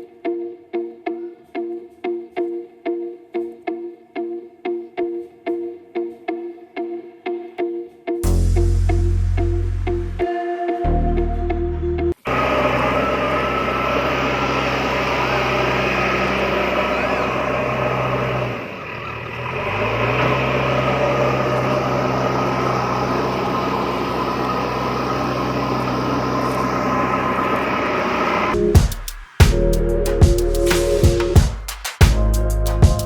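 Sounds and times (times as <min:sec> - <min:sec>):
tractor engine humming: 0:12.2 - 0:31.6.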